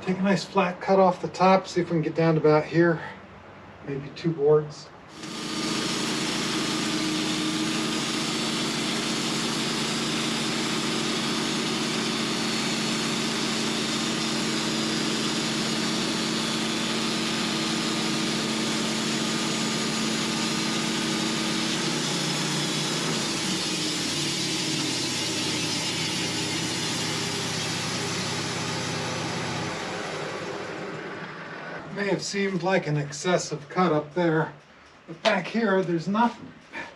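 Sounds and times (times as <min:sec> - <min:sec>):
sawmill blade cutting log: 0:05.1 - 0:32.1.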